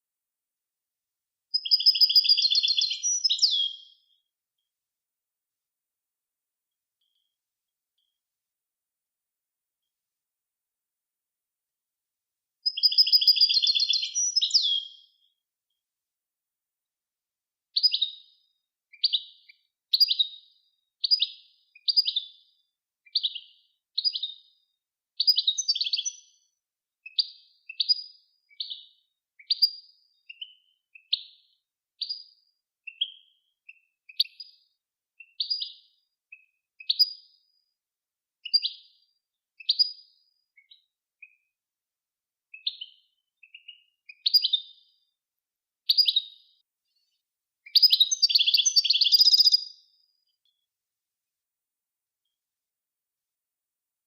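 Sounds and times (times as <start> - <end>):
songbird trilling and chirping: 1.5 - 4.2, 12.6 - 15.3, 17.8 - 18.3, 18.9 - 22.4, 23.1 - 24.5, 25.2 - 26.4, 27.1 - 32.3, 32.9 - 34.6, 35.2 - 37.4, 38.4 - 39.0, 39.6 - 41.4, 42.5 - 44.9, 45.9 - 46.6, 47.6 - 50.6.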